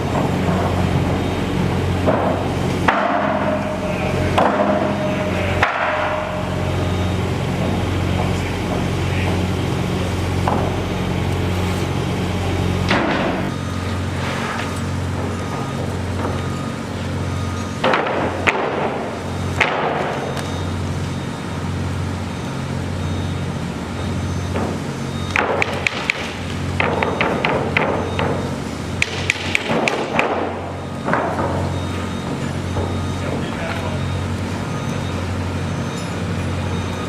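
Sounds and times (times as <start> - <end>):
sharp knocks and clanks: 0.0 - 9.6, 10.4 - 10.9, 12.8 - 13.6, 17.6 - 20.6, 24.4 - 33.5
machinery pulsing hum: 0.0 - 37.0.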